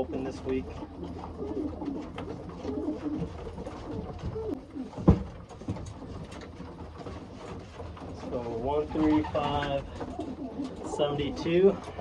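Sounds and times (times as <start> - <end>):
pigeons cooing: 0.0 - 5.0, 8.5 - 12.0.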